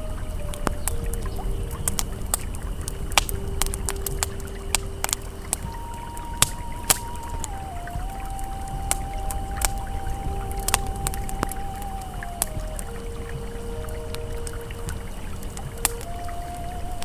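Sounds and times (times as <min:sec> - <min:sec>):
campfire crackling and popping: 0:00.0 - 0:17.0
river water rushing: 0:00.0 - 0:17.0
soft ambient tones: 0:00.0 - 0:17.0.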